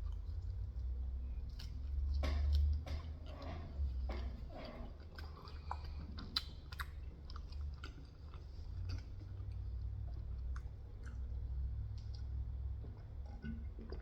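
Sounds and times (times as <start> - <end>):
person chewing food: 0.0 - 14.0
wet mouth clicks: 5.2 - 7.4.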